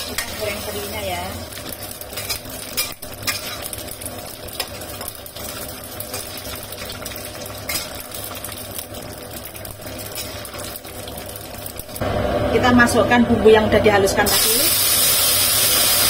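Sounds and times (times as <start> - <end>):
metal spatula scraping wok: 0.0 - 8.5, 9.9 - 10.9
fish sizzling in oil: 0.0 - 12.4, 14.2 - 16.0.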